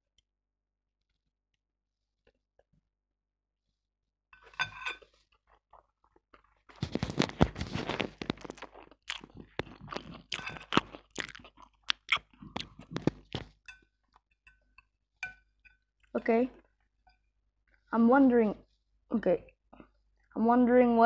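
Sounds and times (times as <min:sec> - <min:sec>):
chewing noodles: 0:05.0 - 0:14.8
wet mouth clicks and smacking: 0:06.8 - 0:13.6.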